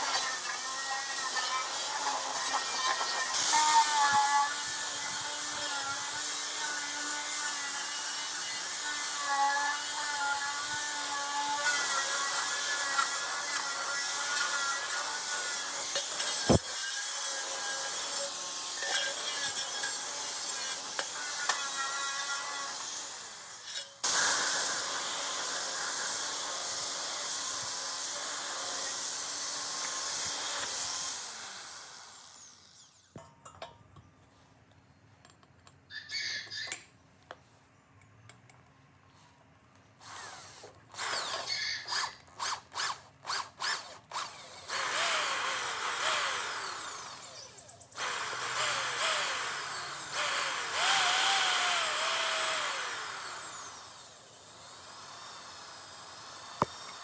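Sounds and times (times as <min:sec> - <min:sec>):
power drill running: 0:11.6 - 0:21.6, 0:22.8 - 0:33.1, 0:40.0 - 0:57.0.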